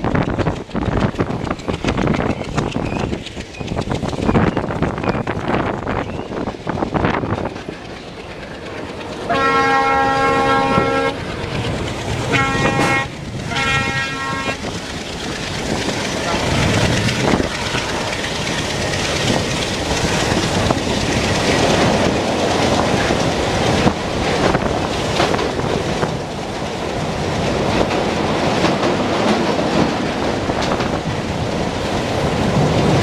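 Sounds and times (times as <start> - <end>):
train rushing: 0.0 - 33.0
wheels clattering: 0.0 - 33.0
locomotive air horn blasts: 9.3 - 11.2, 12.3 - 14.6.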